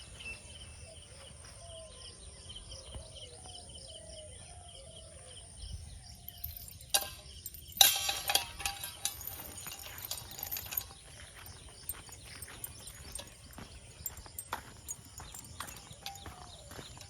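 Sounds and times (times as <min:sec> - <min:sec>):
faint chirping: 0:00.0 - 0:17.0
clatter of clinks and taps: 0:06.2 - 0:17.0.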